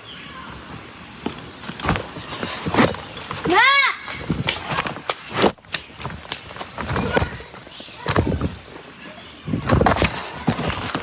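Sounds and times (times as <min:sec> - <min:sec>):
children's voices and shouts: 0:03.4 - 0:04.3.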